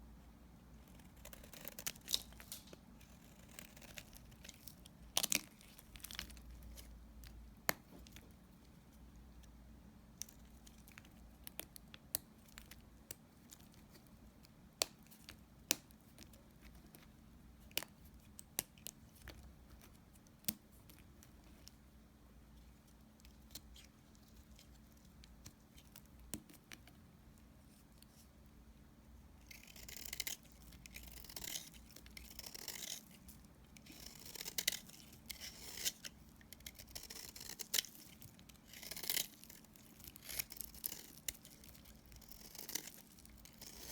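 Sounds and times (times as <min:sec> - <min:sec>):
blade cutting dry soap: 0:29.4 - 0:43.9.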